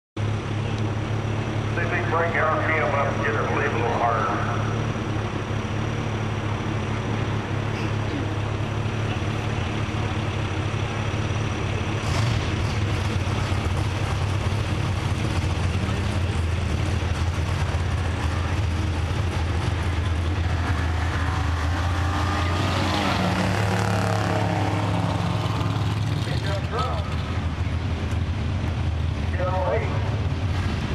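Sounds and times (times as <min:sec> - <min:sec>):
drag racing car engine running: 0:00.2 - 0:30.9
car driving past: 0:17.5 - 0:27.6.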